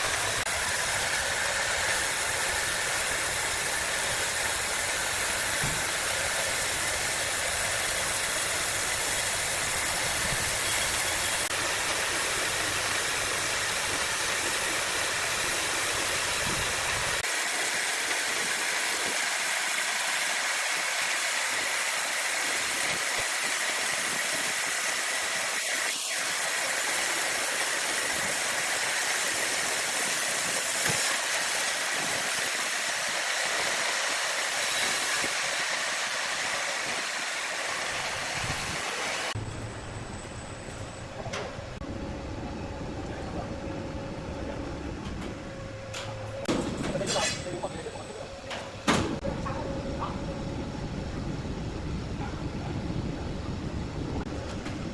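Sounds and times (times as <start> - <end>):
wood saw running: 0.0 - 39.4.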